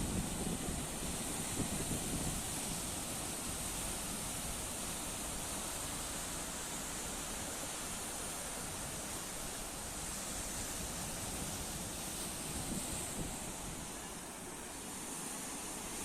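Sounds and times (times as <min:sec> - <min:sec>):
sea waves and surf: 0:00.0 - 0:16.0.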